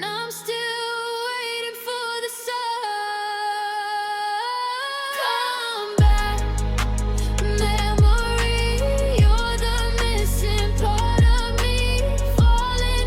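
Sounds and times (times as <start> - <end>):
woman singing wordless notes: 0.0 - 13.0
deep drum hit: 6.0 - 7.1, 8.0 - 8.4, 9.2 - 9.6, 11.2 - 11.6, 12.4 - 12.7
bass line and beat: 6.0 - 13.0.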